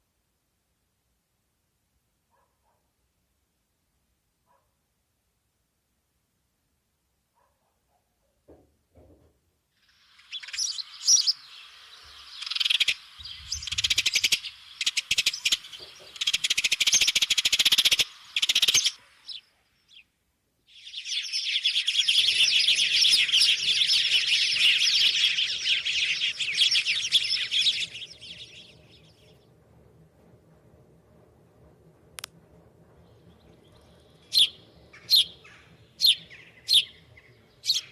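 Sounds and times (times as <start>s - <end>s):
small birds chirping: 9.8s - 29.6s, 33.0s - 37.9s.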